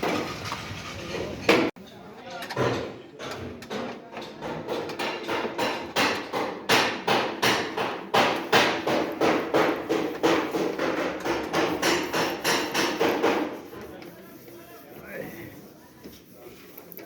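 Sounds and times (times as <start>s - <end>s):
hammer striking metal: 5.0s - 13.5s.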